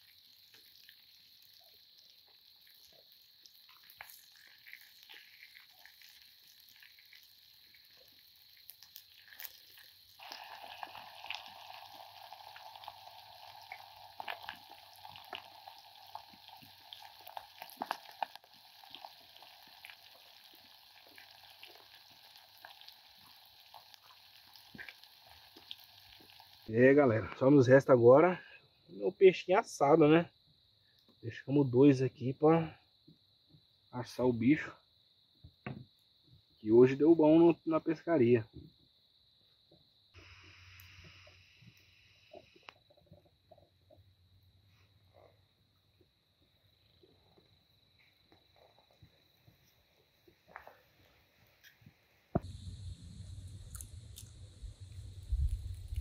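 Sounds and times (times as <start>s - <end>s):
food frying in hot oil: 0.0s - 26.8s, 40.1s - 43.7s, 50.4s - 56.0s.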